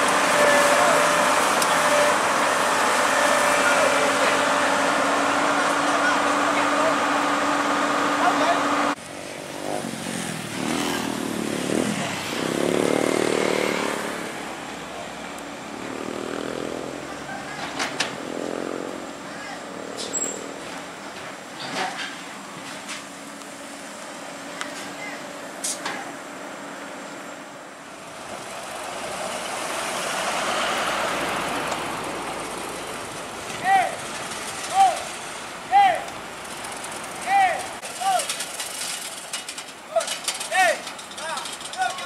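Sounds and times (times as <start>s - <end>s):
heavy diesel engine revving: 0.0s - 9.0s, 9.6s - 21.0s
heavy vehicle engine: 0.0s - 42.0s
road noise: 0.0s - 42.0s.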